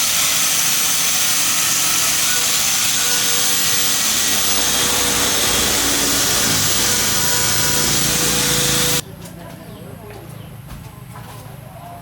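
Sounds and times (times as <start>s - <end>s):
power tool running: 0.0s - 9.0s.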